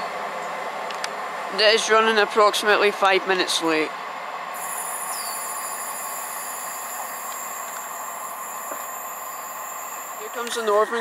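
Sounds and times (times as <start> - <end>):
train engine and wheels on rail: 0.0 - 11.0
thin high steady tone: 4.5 - 11.0.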